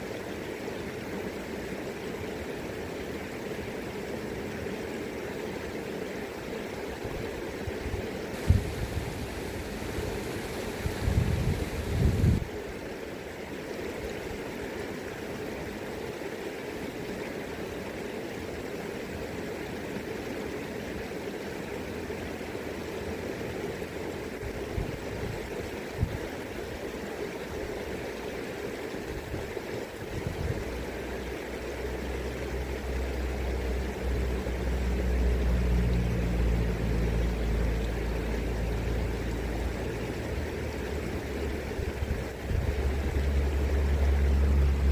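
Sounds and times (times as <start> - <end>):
river current rushing: 0.0 - 44.9
low steady hum: 8.3 - 13.0, 21.4 - 44.9.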